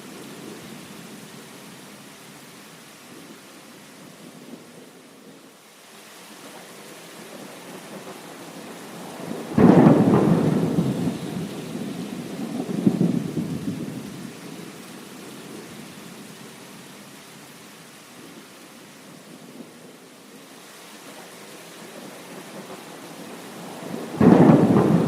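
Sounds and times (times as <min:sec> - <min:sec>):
steady rain: 0:00.0 - 0:25.0
thunder rumbling: 0:08.9 - 0:14.7, 0:23.4 - 0:25.0.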